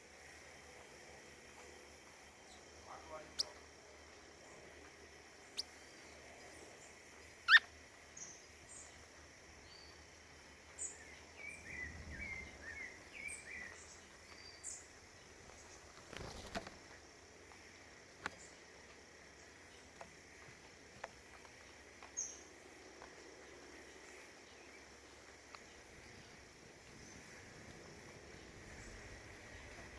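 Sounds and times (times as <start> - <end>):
songbirds calling: 1.5 - 29.9
noisy rustle: 11.7 - 19.0.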